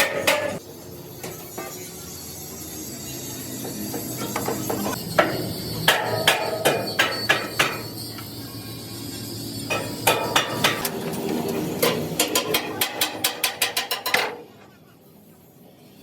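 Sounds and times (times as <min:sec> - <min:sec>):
hammer striking steel: 0:00.0 - 0:00.6, 0:03.6 - 0:08.0, 0:09.7 - 0:10.9, 0:11.8 - 0:14.4.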